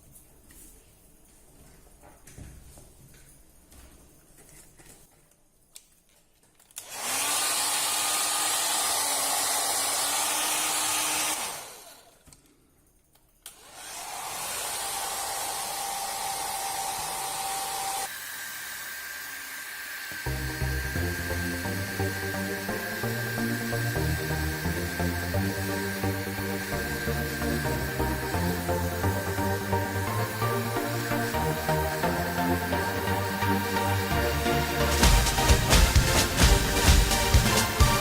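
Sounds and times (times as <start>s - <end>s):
hot air blower rushing: 6.8s - 12.2s, 13.6s - 38.0s.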